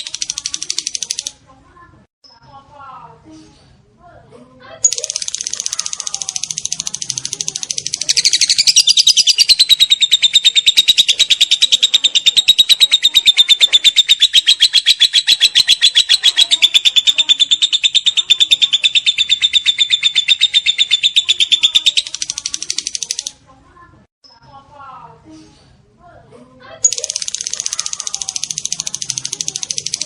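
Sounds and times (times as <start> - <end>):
lovebird chattering: 0.0 - 1.3, 4.8 - 23.3, 26.8 - 30.0.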